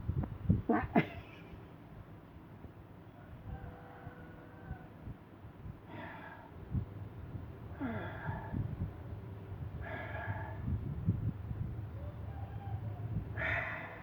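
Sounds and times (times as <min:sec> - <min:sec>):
low irregular rumble: 0:05.4 - 0:14.0
cat breathing with soft snorts: 0:09.5 - 0:11.4, 0:13.3 - 0:14.0.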